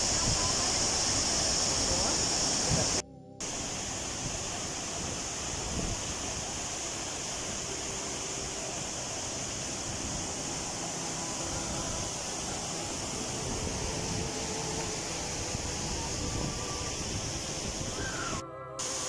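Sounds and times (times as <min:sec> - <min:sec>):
rush of falling water: 0:00.0 - 0:19.0.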